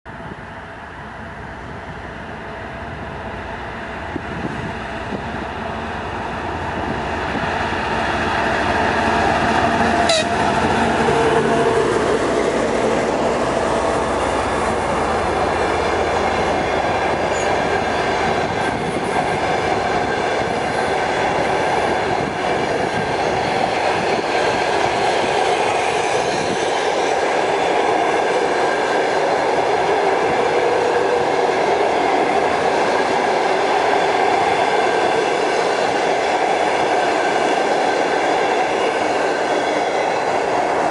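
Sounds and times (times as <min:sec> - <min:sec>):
diesel locomotive engine under load: 0:00.1 - 0:40.9
train coaches rolling on rails: 0:00.2 - 0:40.9.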